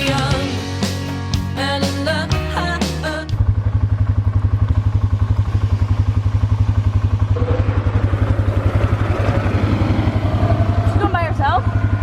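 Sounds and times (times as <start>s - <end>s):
small engine idling: 3.3s - 12.0s.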